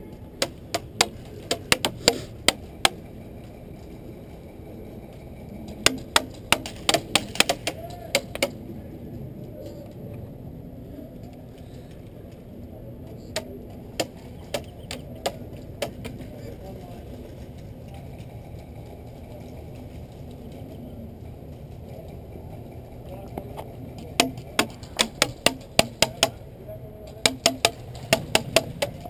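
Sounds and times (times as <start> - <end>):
pellets smacking into surfaces: 0.4 - 3.0, 5.9 - 8.6, 24.1 - 26.4, 27.3 - 29.0
airsoft guns firing: 5.8 - 8.6, 27.2 - 29.0.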